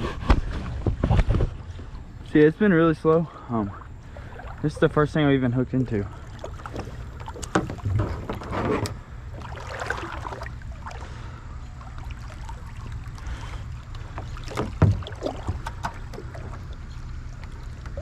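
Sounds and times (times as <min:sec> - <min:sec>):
knocks and rustling in kayak: 0:00.0 - 0:02.1, 0:06.4 - 0:09.0, 0:14.0 - 0:16.7.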